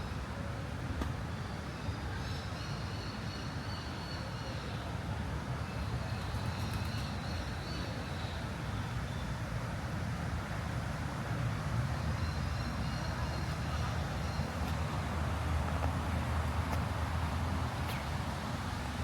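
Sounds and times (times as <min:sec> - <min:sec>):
city traffic rumble: 0:00.0 - 0:19.0.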